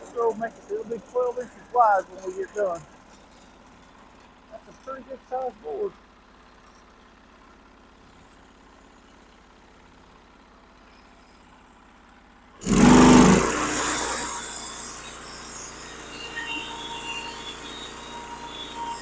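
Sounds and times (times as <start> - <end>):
band saw blade whine: 0.0 - 3.5, 4.5 - 5.9, 12.6 - 19.0
sawmill engine idling and revving: 0.0 - 19.0.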